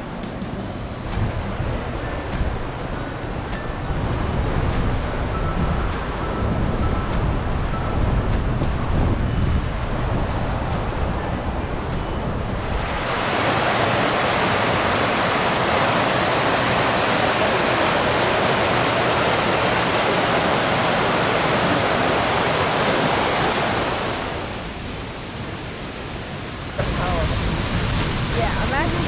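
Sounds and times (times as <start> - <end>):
waterfall roaring: 9.7 - 29.0.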